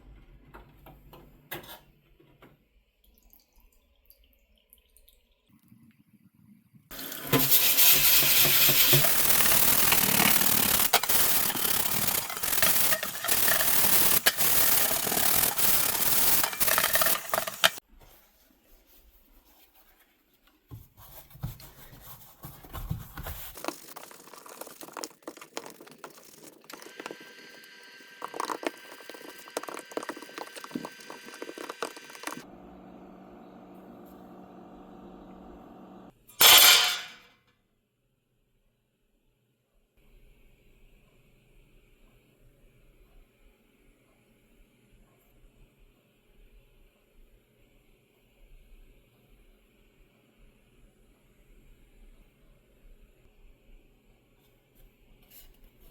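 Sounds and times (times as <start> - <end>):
handling sounds: 7.3 - 17.8, 20.0 - 27.4.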